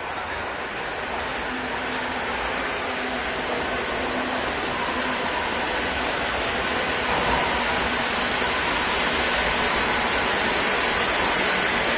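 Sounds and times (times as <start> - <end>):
train rushing on track: 0.0 - 11.9
high wheel squeal: 1.8 - 4.8, 9.5 - 11.9.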